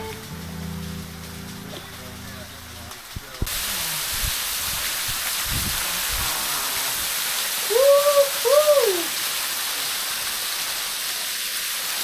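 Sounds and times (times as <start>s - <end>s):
steady rushing hiss: 0.0s - 12.0s
person exclaiming: 7.7s - 9.2s.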